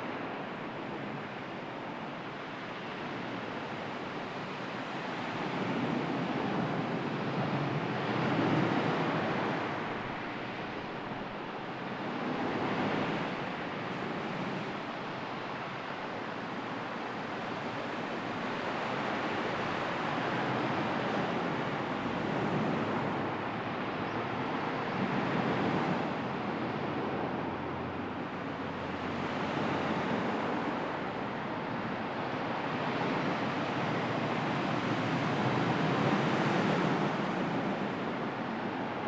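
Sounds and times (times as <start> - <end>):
sea waves washing in: 16.2 - 39.0.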